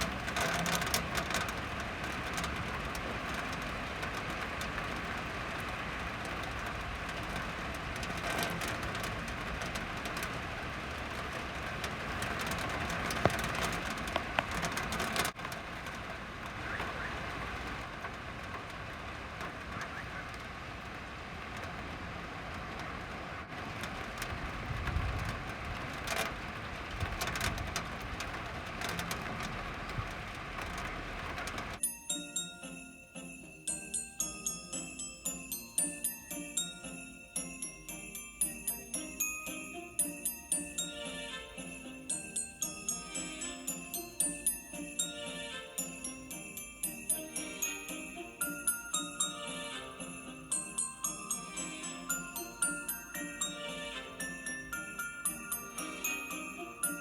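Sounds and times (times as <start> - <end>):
drops ticking on surfaces: 0.0 - 16.6
traffic hissing on wet road: 0.0 - 31.8, 39.2 - 57.0
steady rain falling: 0.0 - 57.0.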